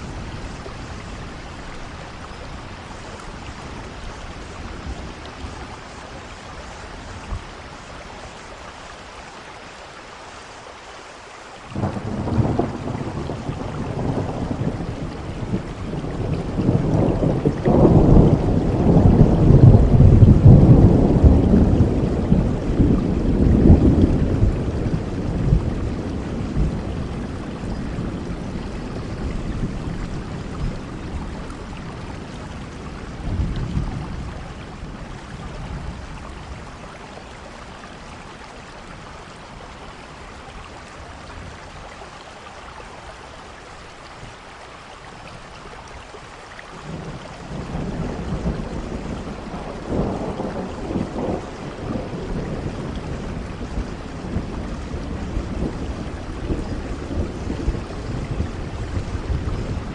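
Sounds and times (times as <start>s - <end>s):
steady rain: 0.0s - 59.9s
rolling thunder: 11.7s - 36.8s, 46.8s - 59.9s.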